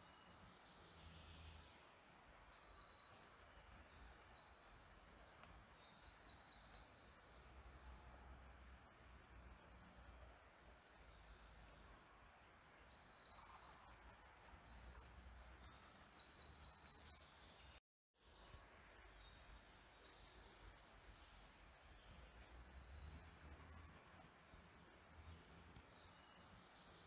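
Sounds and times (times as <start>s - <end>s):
faint steady hiss: 0.0s - 27.0s.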